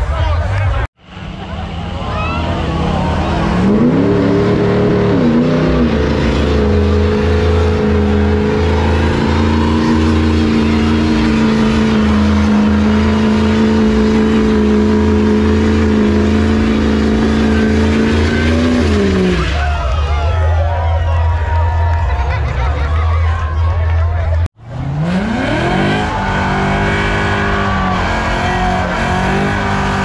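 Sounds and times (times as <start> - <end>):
car engine revving: 0.0 - 20.2, 22.0 - 30.0.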